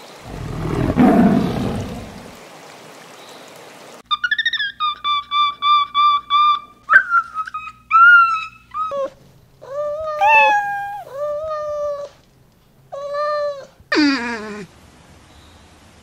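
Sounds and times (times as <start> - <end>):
cat meowing: 10.0 - 11.2
high-pitched squeaky calls: 10.2 - 11.1.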